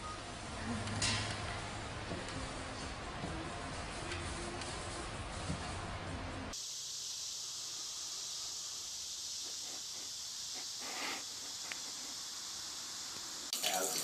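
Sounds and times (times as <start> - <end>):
water spraying hiss: 6.5 - 14.0.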